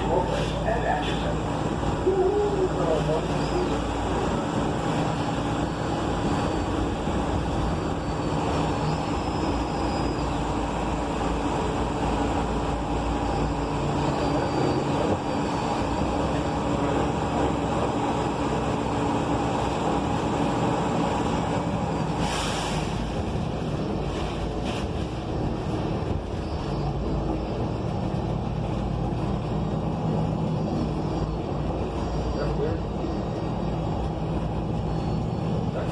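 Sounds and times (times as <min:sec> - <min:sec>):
bus engine droning: 0:00.0 - 0:35.9
road and tyre noise: 0:00.0 - 0:35.9
air hiss: 0:22.2 - 0:23.1.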